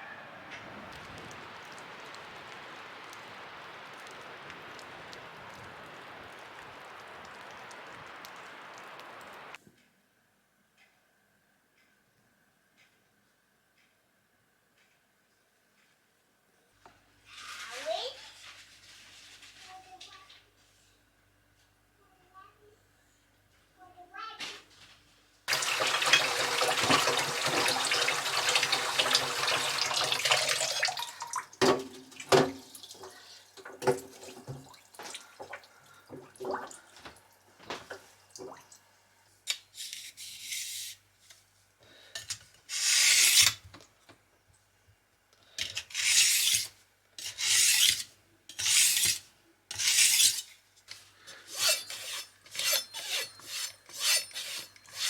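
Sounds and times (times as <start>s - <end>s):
knife scraping on sharpening stone: 45.6s - 50.5s, 51.5s - 55.0s.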